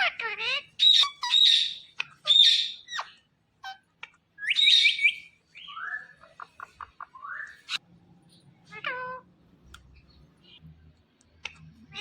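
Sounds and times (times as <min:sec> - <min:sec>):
parakeet shrill calls: 0:00.0 - 0:03.8, 0:04.4 - 0:06.3
parakeet chatter: 0:00.0 - 0:07.8, 0:11.4 - 0:12.0.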